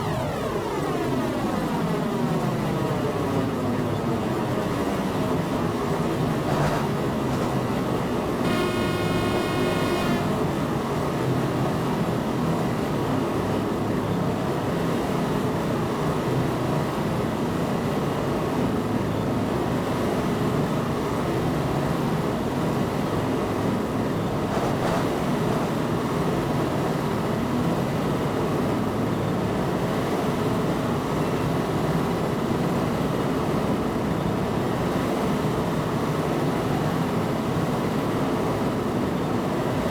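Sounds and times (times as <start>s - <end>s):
train running: 6.2s - 10.6s
train horn blast: 8.4s - 10.5s.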